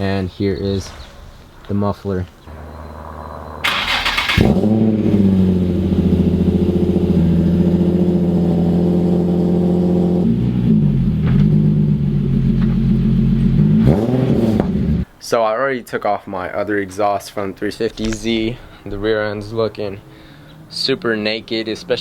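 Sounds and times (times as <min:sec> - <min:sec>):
car engine running: 0:02.8 - 0:15.0.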